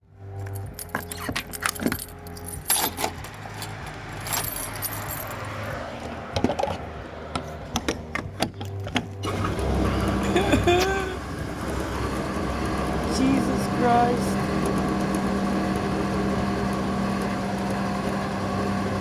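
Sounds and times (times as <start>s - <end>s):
light metallic jingling and clicking: 0.4s - 5.7s
low steady hum: 6.2s - 19.0s.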